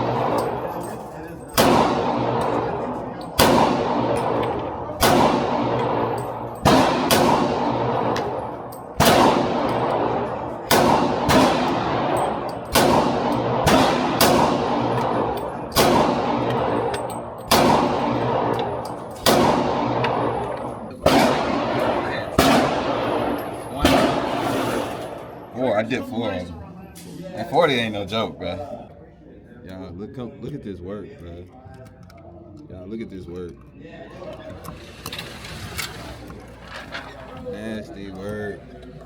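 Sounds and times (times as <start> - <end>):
handgun shots ringing: 0.0 - 25.5.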